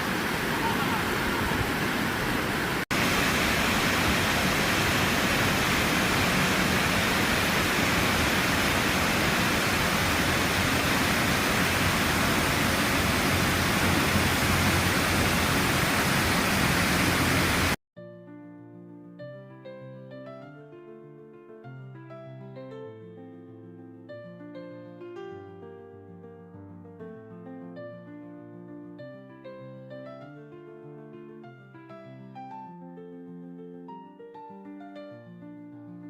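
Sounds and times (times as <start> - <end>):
waterfall rushing: 0.0 - 17.8
piano music: 18.0 - 36.0.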